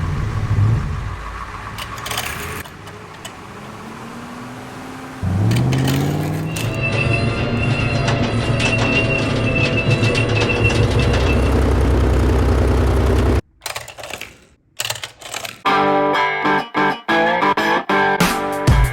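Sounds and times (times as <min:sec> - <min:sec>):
engine-like rumble: 0:00.0 - 0:13.4.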